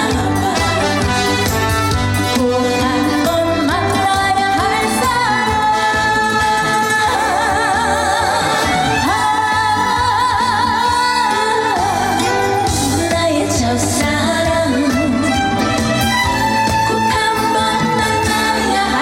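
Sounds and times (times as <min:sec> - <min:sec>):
woman singing with vibrato: 0:00.0 - 0:15.7, 0:16.7 - 0:19.0
band accompaniment: 0:00.0 - 0:19.0.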